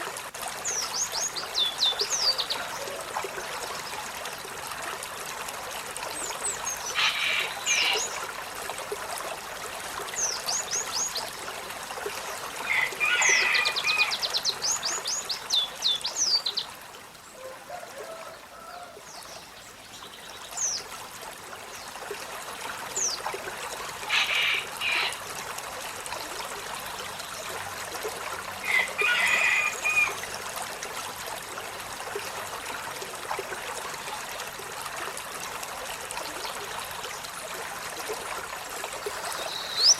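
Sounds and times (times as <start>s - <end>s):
running water hiss: 0.0s - 39.9s
sunbird calling and singing: 39.4s - 39.9s.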